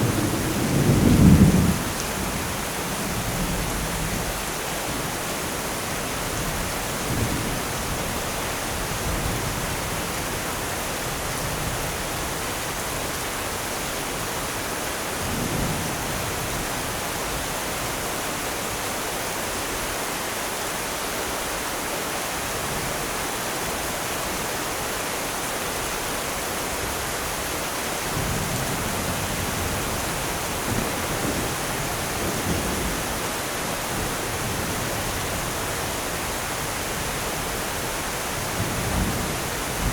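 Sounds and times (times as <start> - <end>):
distant thunder rumbling: 0.0 - 4.4
heavy rain hissing: 0.0 - 39.9.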